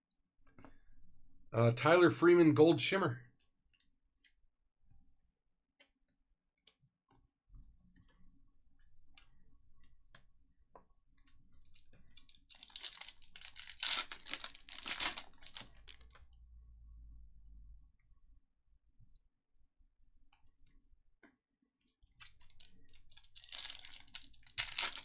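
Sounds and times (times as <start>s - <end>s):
foil wrapper crinkling and tearing: 11.7s - 16.2s, 22.2s - 25.0s.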